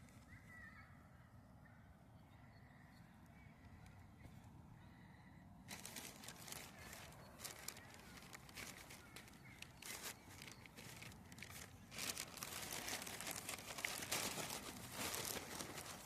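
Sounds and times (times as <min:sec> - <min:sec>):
paper and packaging crinkling: 0:05.7 - 0:16.0.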